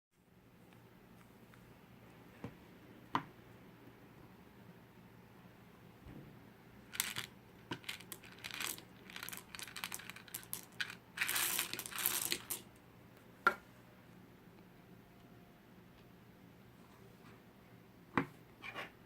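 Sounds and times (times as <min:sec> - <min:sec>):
crinkling and crackling: 0:06.9 - 0:12.6.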